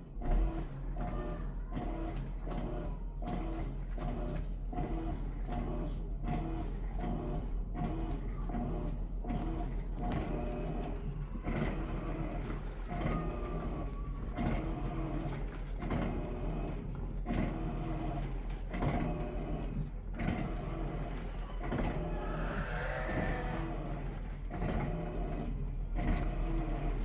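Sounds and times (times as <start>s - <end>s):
washing machine motor agitating: 10.2s - 27.0s.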